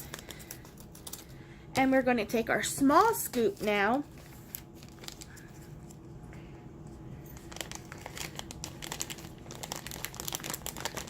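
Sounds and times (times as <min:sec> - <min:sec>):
plastic packaging crinkling: 0:00.0 - 0:01.4, 0:03.2 - 0:06.0, 0:07.2 - 0:11.0.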